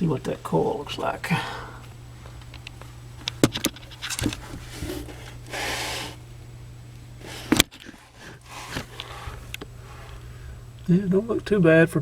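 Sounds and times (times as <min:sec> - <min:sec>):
low steady hum: 0:00.0 - 0:12.0
scrape: 0:04.4 - 0:06.2, 0:07.2 - 0:10.2.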